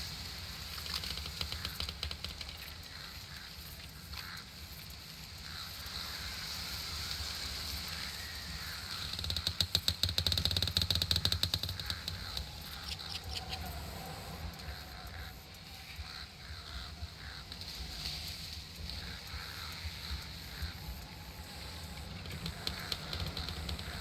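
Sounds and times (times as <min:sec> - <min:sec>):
steady high hiss: 0:00.0 - 0:24.0
animal rapid rattling call: 0:00.1 - 0:24.0.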